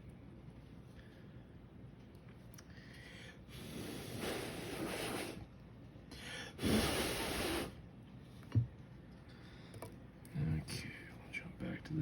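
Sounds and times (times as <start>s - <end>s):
person blowing air: 3.5s - 5.5s, 6.5s - 7.8s.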